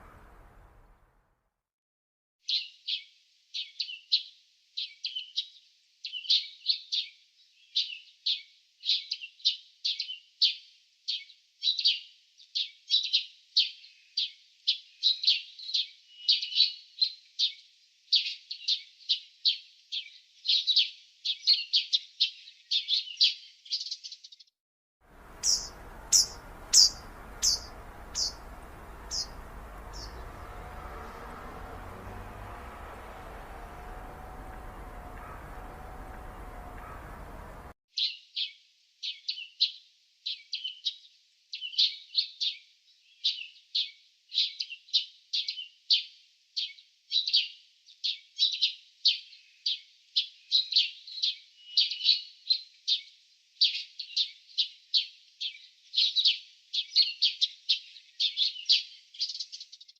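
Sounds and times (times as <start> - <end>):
birds chirping: 0.0 - 1.1, 25.1 - 37.8
steady outdoor hiss: 0.0 - 1.1, 25.1 - 37.7
bird giving downward-sliding chirps: 25.2 - 37.6.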